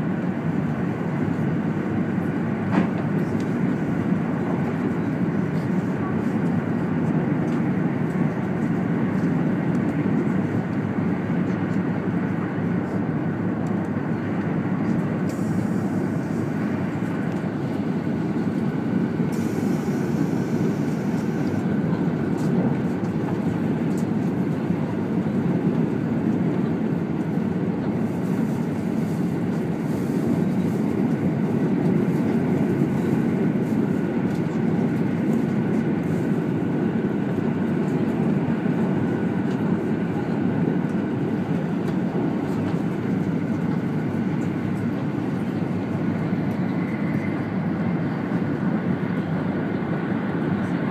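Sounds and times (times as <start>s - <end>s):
train cabin rumble and hiss: 0.0s - 50.9s.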